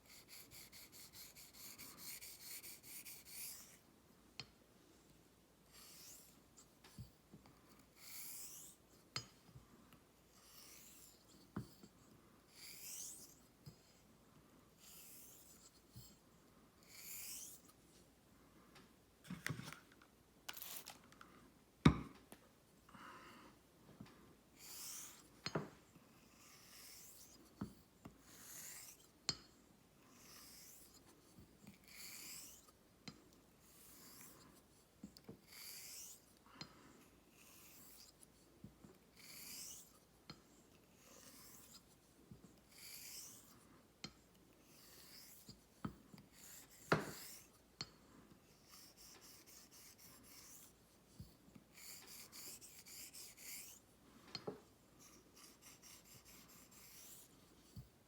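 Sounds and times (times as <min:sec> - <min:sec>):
razor honing on whetstone: 0:00.1 - 0:03.8, 0:24.6 - 0:25.2, 0:26.3 - 0:27.4, 0:28.3 - 0:29.0, 0:30.1 - 0:31.0, 0:31.8 - 0:32.7, 0:35.4 - 0:36.2, 0:37.4 - 0:38.2, 0:39.2 - 0:39.9, 0:41.0 - 0:42.0, 0:42.7 - 0:43.5, 0:44.7 - 0:45.6, 0:46.3 - 0:47.5, 0:48.6 - 0:50.8, 0:51.7 - 0:53.8, 0:55.0 - 0:57.8.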